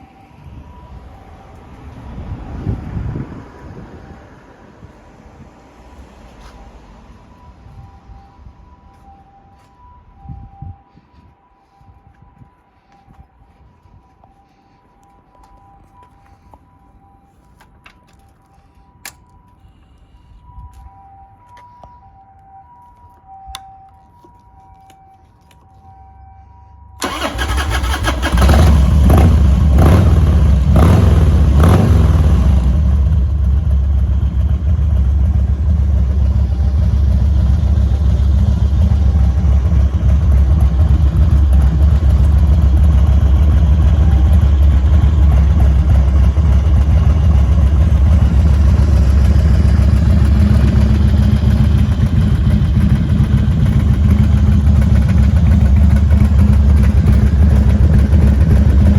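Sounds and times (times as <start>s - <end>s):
motorcycle engine revving and idling: 27.0s - 58.9s
motorcycle engine starting: 27.0s - 58.9s.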